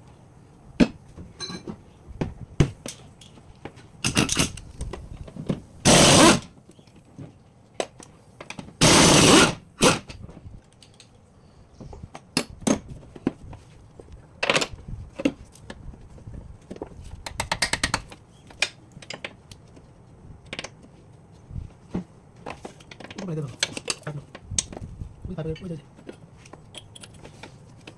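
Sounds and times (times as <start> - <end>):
impact wrench bursts: 5.8 - 6.5, 8.8 - 10.1
metallic clicks and knocks of tools: 25.5 - 27.9.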